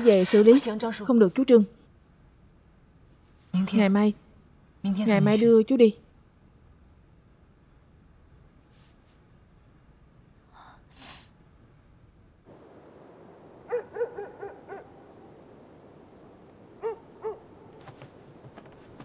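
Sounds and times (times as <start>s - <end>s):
outdoor night ambience: 0.0s - 19.0s
soft breaths: 8.7s - 9.3s, 10.4s - 11.4s
night bird hooting: 13.2s - 18.1s.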